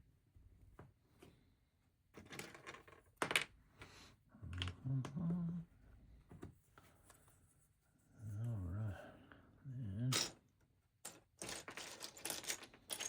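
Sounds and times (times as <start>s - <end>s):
low humming voice: 4.4s - 5.7s, 8.2s - 10.3s
plastic bricks clicking and rattling: 11.1s - 13.0s.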